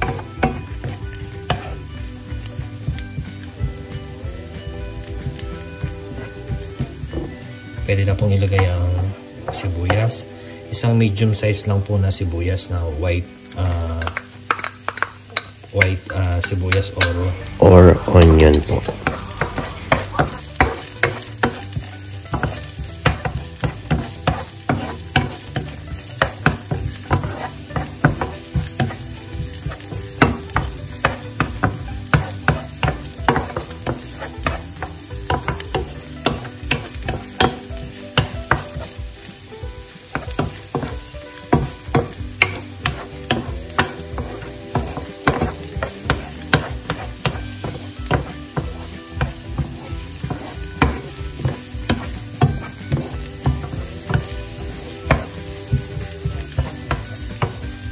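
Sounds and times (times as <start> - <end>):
wooden spoon scraping a pan: 0.0 - 11.3, 13.6 - 57.9
onions sizzling in oil: 0.0 - 57.9.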